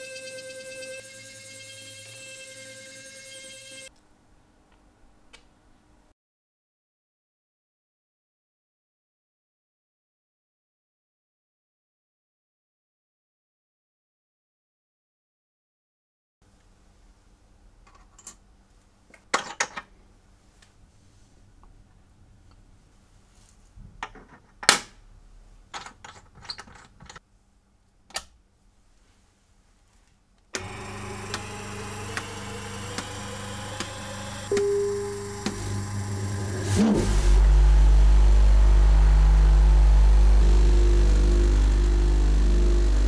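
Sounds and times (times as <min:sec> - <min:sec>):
short held tone: 0:00.0 - 0:03.9, 0:34.5 - 0:37.5
low hum: 0:30.6 - 0:43.0.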